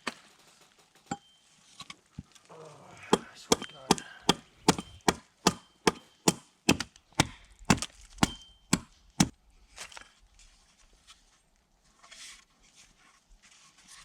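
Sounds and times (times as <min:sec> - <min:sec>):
hand tool chopping wood: 0:03.1 - 0:09.4.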